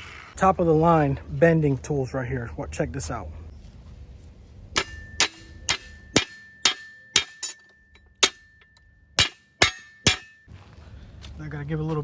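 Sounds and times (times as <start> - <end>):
hammer striking steel: 4.7 - 10.5
metal ringing: 4.7 - 10.5.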